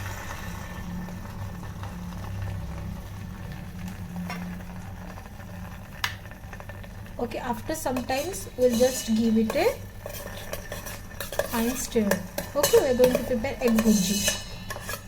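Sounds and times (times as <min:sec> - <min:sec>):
electric kettle humming: 0:00.0 - 0:10.5.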